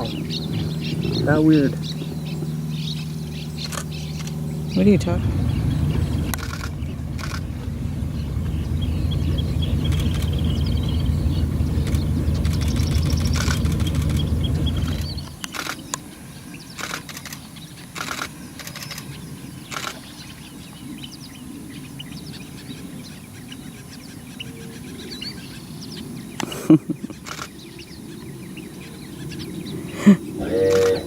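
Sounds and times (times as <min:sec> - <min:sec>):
low rumble: 0:00.0 - 0:15.4
small birds chirping: 0:00.0 - 0:31.0.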